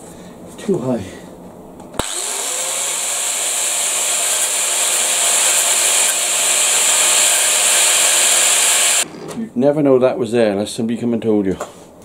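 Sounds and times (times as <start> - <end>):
electric grinder grinding metal: 2.0 - 9.1.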